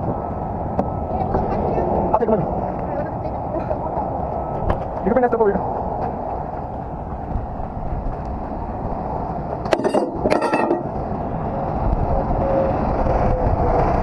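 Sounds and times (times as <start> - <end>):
low rumble: 0.0 - 14.0
chain clanking: 9.7 - 10.9.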